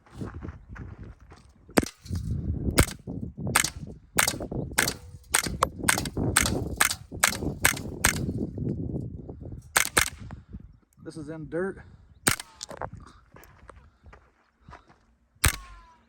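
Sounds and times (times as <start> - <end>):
rifle bolt clacking: 1.8 - 3.0, 3.6 - 8.3, 9.8 - 10.2, 12.3 - 12.8, 15.4 - 15.8
suppressed rifle shots: 1.8 - 8.4, 9.8 - 10.2, 12.3 - 12.7, 15.4 - 15.9.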